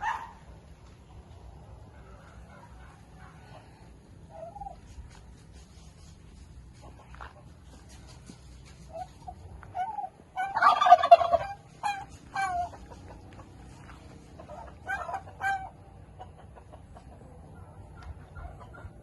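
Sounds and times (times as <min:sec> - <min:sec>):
turkey gobbling: 0:01.9 - 0:04.9, 0:08.8 - 0:19.0.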